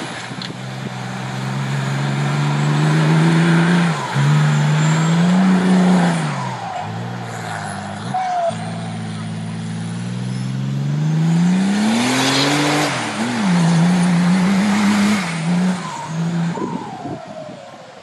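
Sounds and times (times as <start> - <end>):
engine revving: 0.0 - 17.3.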